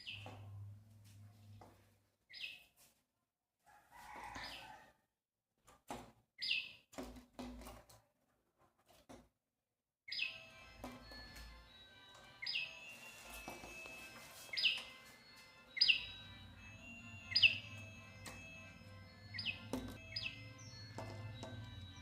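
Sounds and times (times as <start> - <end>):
small bird chirping: 6.4 - 6.8.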